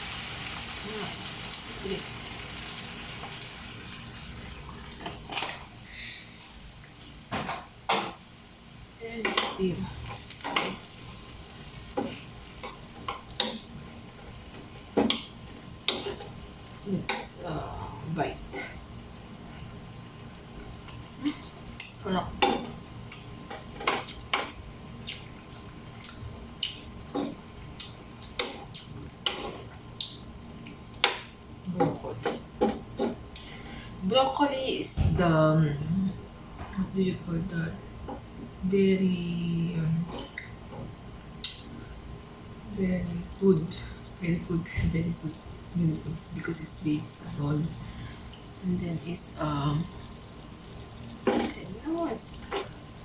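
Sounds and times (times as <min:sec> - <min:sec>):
hot pan hissing: 0:00.0 - 0:05.0
low steady hum: 0:00.0 - 0:53.0.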